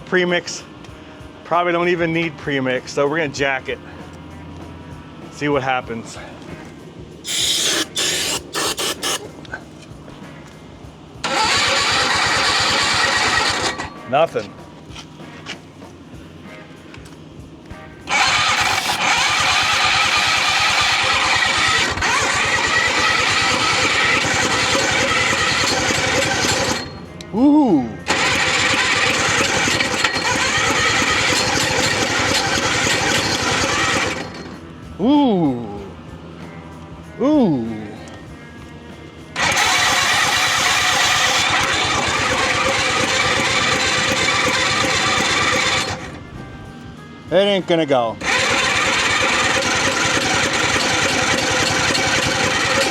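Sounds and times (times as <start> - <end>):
rotary engine cranking: 6.0 - 9.6, 11.2 - 14.4, 18.0 - 27.3, 28.0 - 34.7, 39.4 - 46.8, 48.2 - 52.9.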